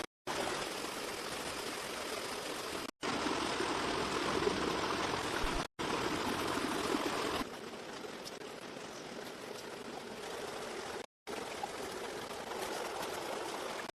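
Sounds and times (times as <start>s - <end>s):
rushing water: 0.0s - 13.9s.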